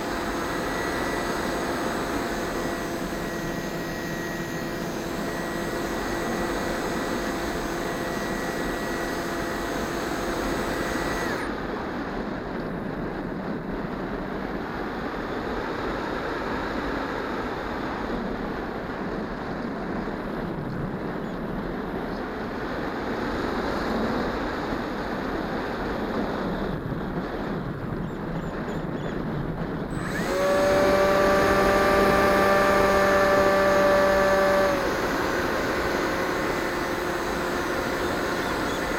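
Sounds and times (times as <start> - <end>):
electric motor and propeller whining: 0.0 - 12.3, 29.8 - 38.9
wind noise: 0.0 - 38.9.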